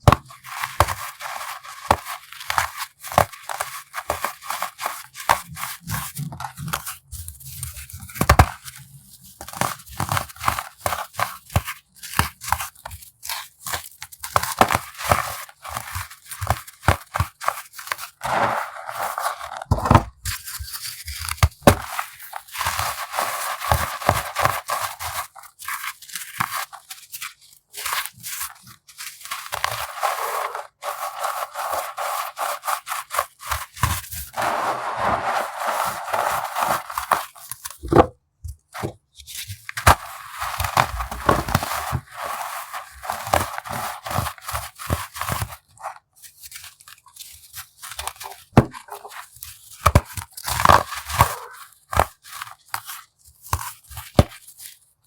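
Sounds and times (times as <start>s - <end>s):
baking soda crunching: 18.0s - 19.9s, 29.2s - 37.9s, 39.7s - 45.2s
gritty scraping: 18.2s - 20.3s, 29.8s - 32.0s, 34.3s - 38.1s, 39.9s - 43.8s.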